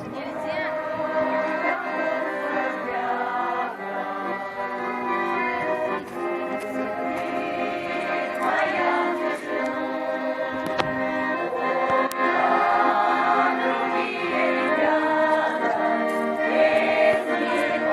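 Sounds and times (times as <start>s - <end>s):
choir singing: 0.0s - 17.9s
held accordion chords: 0.0s - 17.9s.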